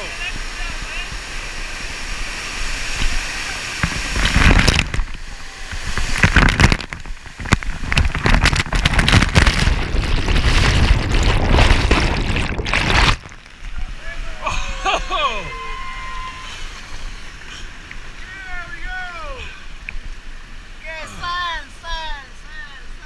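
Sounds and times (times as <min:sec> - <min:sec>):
waterfall pounding on microphone: 0:00.0 - 0:23.0.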